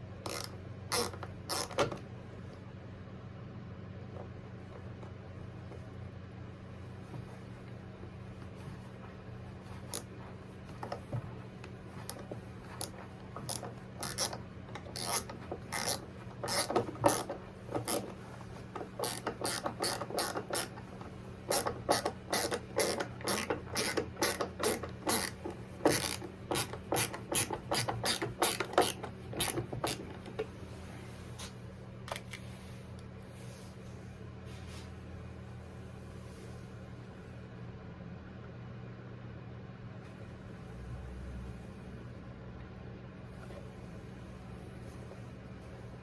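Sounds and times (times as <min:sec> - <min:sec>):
ratcheting screwdriver clicking: 0:00.3 - 0:02.0, 0:12.8 - 0:18.1, 0:18.9 - 0:20.8, 0:21.5 - 0:30.2.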